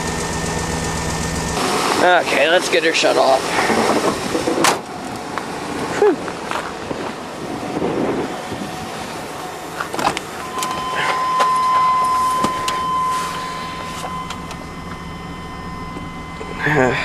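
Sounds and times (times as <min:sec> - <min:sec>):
electronic warning tone: 0:07.5 - 0:17.0.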